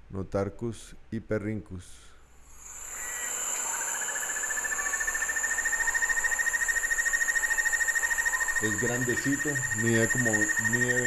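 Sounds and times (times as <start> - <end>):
high insect drone: 2.4 - 11.0
bird trilling: 2.7 - 11.0.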